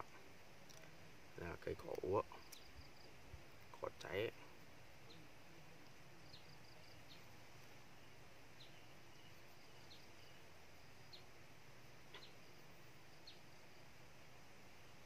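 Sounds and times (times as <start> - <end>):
small bird chirping: 1.9 - 3.2, 6.2 - 7.4, 8.0 - 11.4, 12.0 - 13.6.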